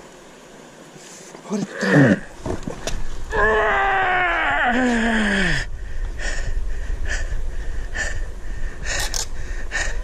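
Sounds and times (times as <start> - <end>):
person groaning with strain: 1.7 - 2.3, 3.3 - 5.7
short regular breaths: 4.9 - 10.0.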